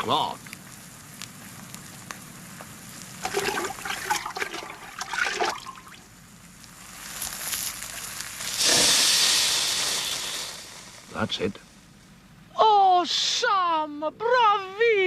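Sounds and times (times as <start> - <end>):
loud hiss of smothered fire: 0.0 - 12.0
pan fire crackling: 0.0 - 15.0.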